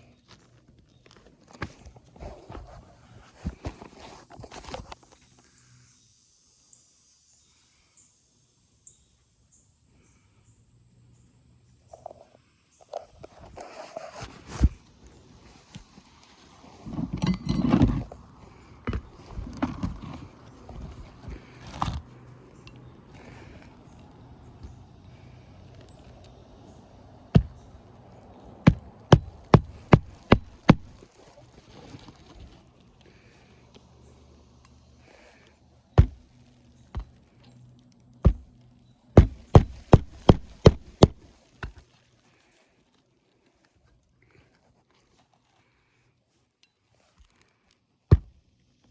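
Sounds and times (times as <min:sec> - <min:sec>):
scraping on shingle roof: 0:15.8 - 0:22.0, 0:27.4 - 0:27.7, 0:28.7 - 0:31.1, 0:36.0 - 0:36.3, 0:38.3 - 0:38.5, 0:39.2 - 0:41.8, 0:48.1 - 0:48.3
sharp knocks on roof: 0:27.4 - 0:27.6, 0:28.7 - 0:31.0, 0:36.0 - 0:36.2, 0:38.3 - 0:38.5, 0:39.2 - 0:41.3, 0:48.1 - 0:48.3.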